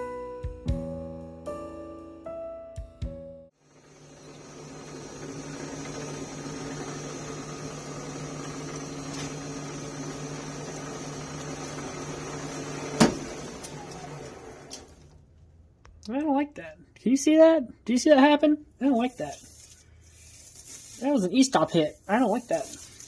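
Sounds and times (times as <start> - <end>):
metal lathe motor running: 3.6 - 15.1.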